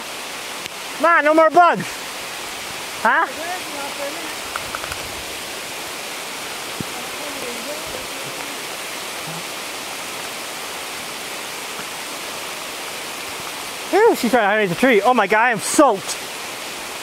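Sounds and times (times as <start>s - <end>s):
heavy rain on leaves: 0.0s - 17.0s.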